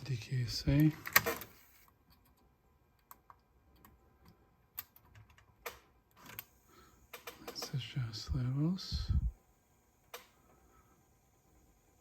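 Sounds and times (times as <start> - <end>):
sharp clicks: 7.1 - 7.8.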